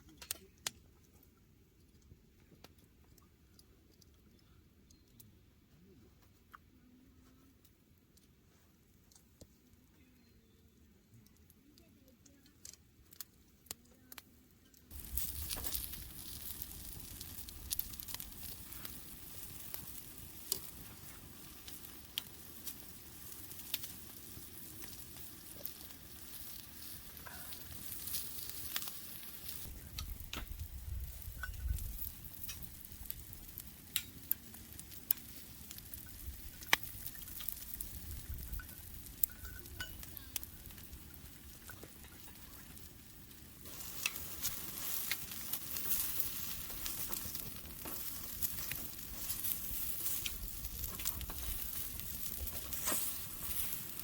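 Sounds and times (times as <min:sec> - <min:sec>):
meat sizzling on a grill: 0:14.9 - 0:54.0.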